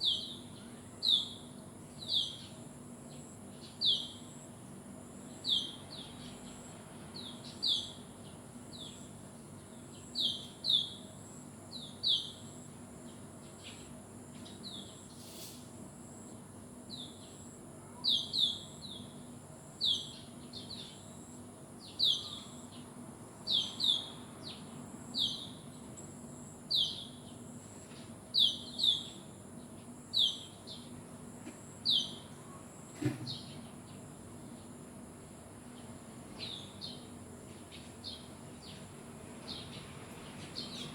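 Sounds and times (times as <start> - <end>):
bird chirping: 9.9 - 11.0, 19.8 - 21.0, 21.8 - 22.9, 23.5 - 24.6, 25.2 - 25.6, 26.7 - 27.4, 28.3 - 29.2, 30.1 - 30.9, 31.8 - 32.3, 36.4 - 37.1.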